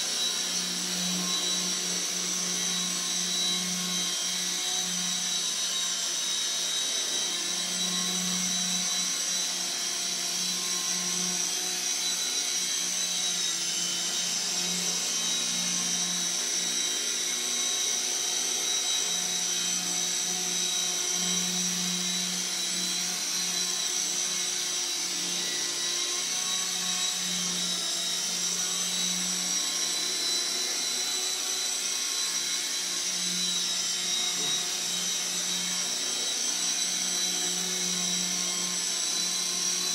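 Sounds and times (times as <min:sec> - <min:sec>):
high-pitched motor whine: 0:00.0 - 0:39.9.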